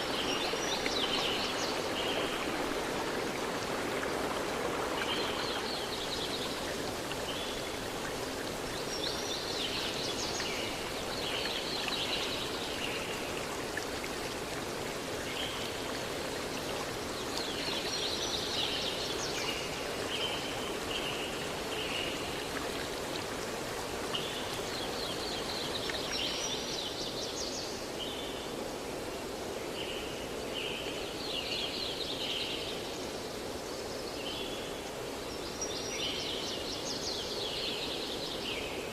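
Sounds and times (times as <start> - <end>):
river stream rushing: 0.0 - 27.0.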